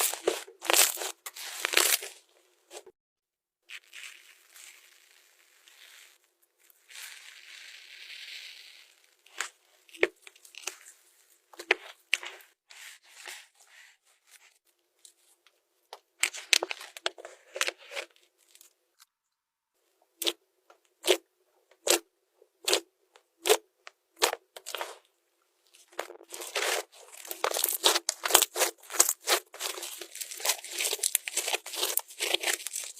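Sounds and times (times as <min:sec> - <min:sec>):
slime squeezed crackling: 0:00.0 - 0:02.2, 0:03.7 - 0:11.0, 0:25.8 - 0:32.9.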